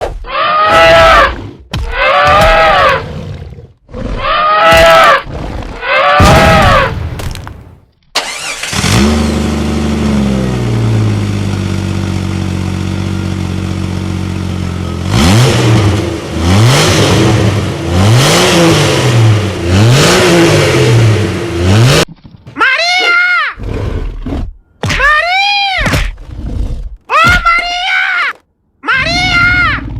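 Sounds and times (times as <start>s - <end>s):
engine idling and revving: 8.2s - 22.1s.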